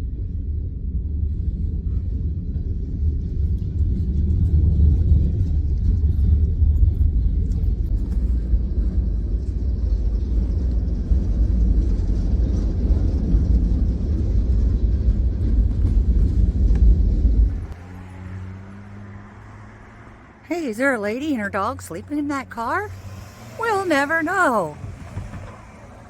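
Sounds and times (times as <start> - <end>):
train rumbling past: 24.8 - 26.0.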